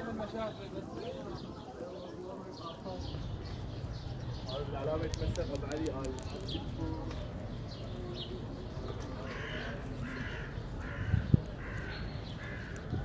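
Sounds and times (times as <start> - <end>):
street noise: 0.0 - 13.0.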